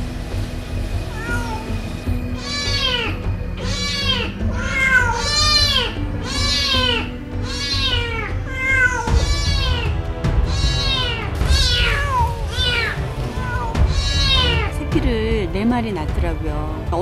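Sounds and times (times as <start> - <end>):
cat meowing: 1.1 - 1.8, 2.4 - 14.7.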